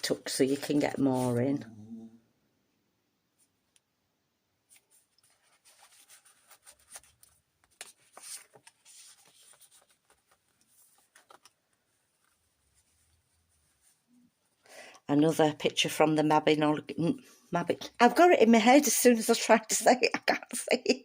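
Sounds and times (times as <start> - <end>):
paper pages rustling and turning: 0.0 - 1.4, 4.7 - 14.0.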